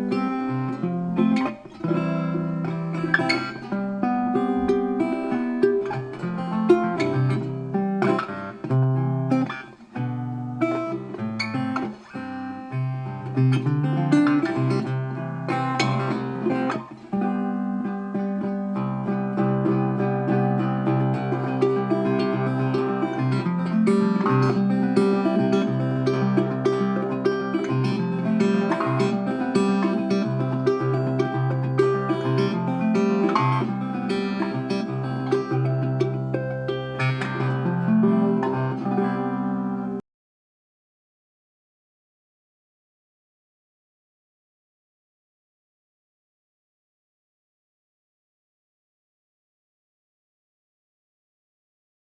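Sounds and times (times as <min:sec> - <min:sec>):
guitar picking and strumming: 0:00.0 - 0:40.0.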